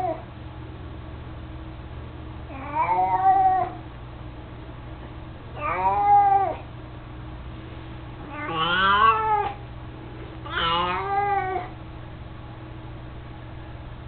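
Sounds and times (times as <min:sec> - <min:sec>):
cat meowing: 0:02.5 - 0:03.8, 0:05.6 - 0:06.6, 0:08.3 - 0:09.6, 0:10.4 - 0:11.8.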